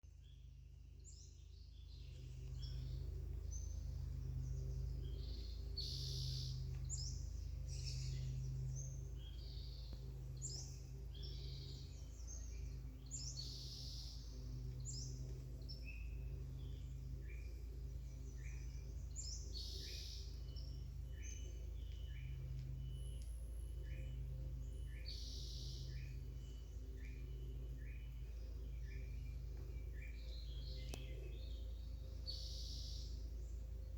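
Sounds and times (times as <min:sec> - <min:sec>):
steady low hum: 0:00.0 - 0:33.9
wild birds chirping: 0:00.0 - 0:33.9.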